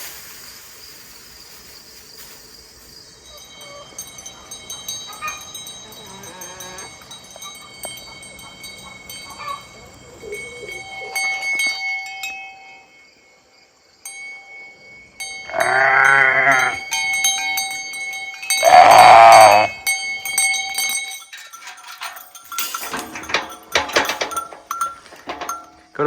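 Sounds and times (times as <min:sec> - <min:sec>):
sheep bleating: 0:15.5 - 0:16.8, 0:18.6 - 0:19.7.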